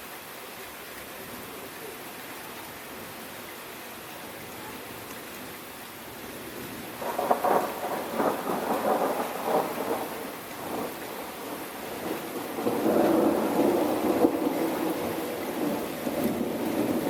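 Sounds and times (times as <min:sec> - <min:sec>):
steady rain: 0:00.0 - 0:17.0
thunder rumbling: 0:07.0 - 0:17.0.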